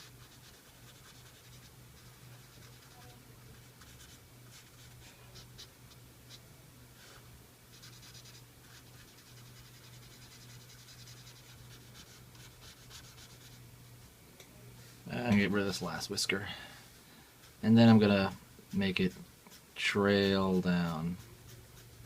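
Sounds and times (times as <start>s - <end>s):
marker scratching on paper: 0.0s - 5.7s, 7.7s - 13.6s, 18.7s - 22.0s
steady low hum: 0.0s - 22.0s.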